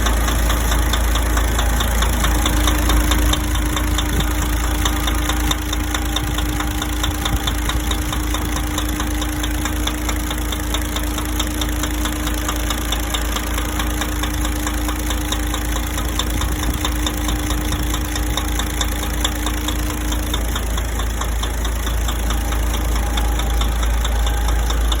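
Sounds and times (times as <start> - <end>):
diesel truck engine idling: 0.0 - 25.0
rapid engine knocking: 0.0 - 25.0.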